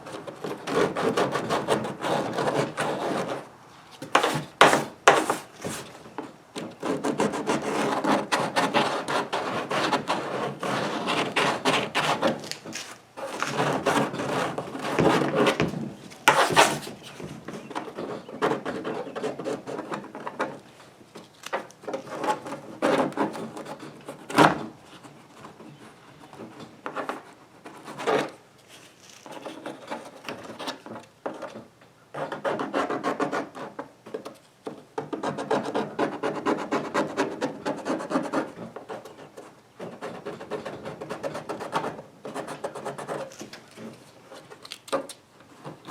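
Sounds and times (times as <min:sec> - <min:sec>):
abrasive rasping on plastic: 0:00.0 - 0:20.6.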